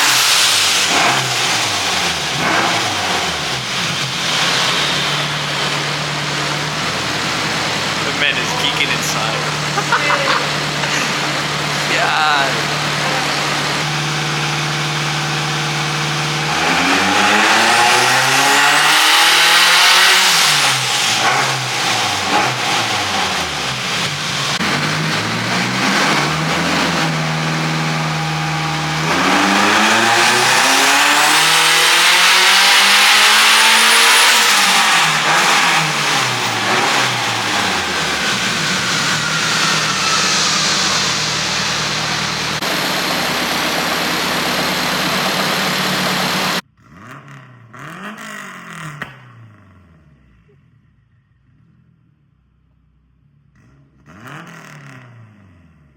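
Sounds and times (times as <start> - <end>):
car engine revving: 0.0 - 50.0
faint high turbo whistle: 37.1 - 43.3.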